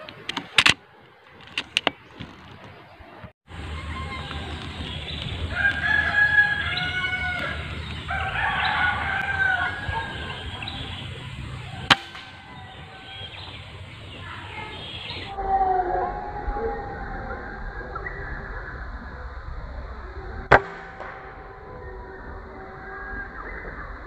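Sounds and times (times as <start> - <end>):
rooster crowing: 3.8 - 18.6, 20.5 - 24.0
air rifle shot: 11.9 - 12.9, 20.5 - 21.8.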